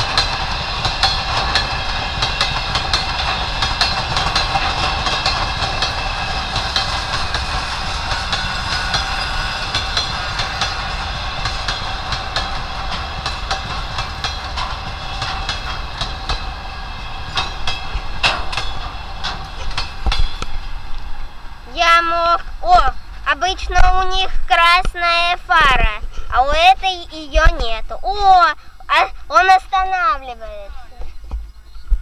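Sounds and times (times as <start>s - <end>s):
high metallic squeal: 0.0s - 21.7s
train wheels clicking over rail joints: 0.0s - 32.0s.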